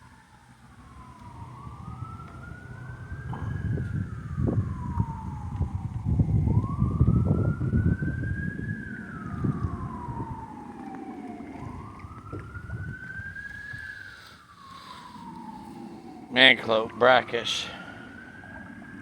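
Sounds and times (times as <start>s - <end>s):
emergency vehicle siren wailing: 0.0s - 19.0s
low rumbling noise: 0.0s - 19.0s.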